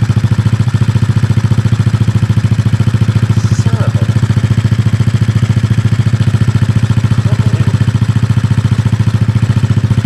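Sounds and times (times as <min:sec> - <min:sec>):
pit bike engine idling: 0:00.0 - 0:10.0.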